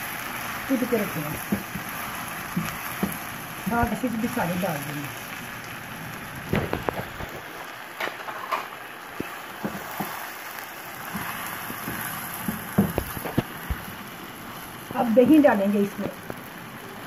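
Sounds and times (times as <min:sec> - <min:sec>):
chicken sizzling in oil: 0:00.0 - 0:17.0
spatula knocking and scraping pan: 0:01.4 - 0:03.2, 0:11.1 - 0:13.8.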